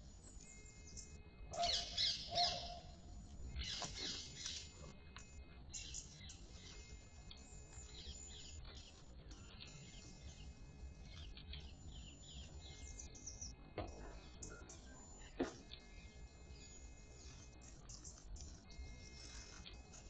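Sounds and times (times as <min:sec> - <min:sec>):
faint bird chirps: 0:00.0 - 0:20.0.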